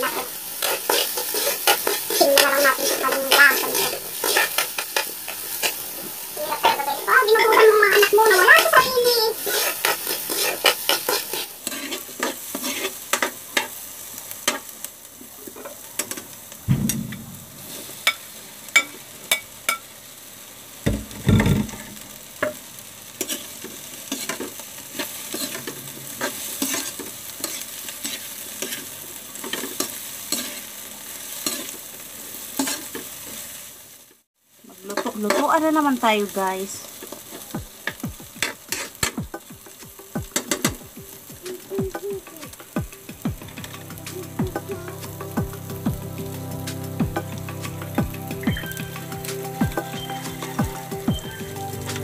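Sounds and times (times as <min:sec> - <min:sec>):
metal spatula scraping a pan: 0:00.0 - 0:05.8, 0:06.4 - 0:13.8, 0:23.2 - 0:30.7, 0:38.4 - 0:39.2
food sizzling in a wok: 0:00.0 - 0:52.0
dull low knocks: 0:16.7 - 0:17.8.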